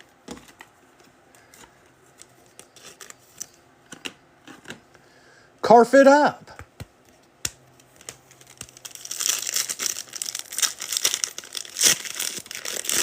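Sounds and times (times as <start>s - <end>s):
foil wrapper tearing and crinkling: 8.3s - 13.0s.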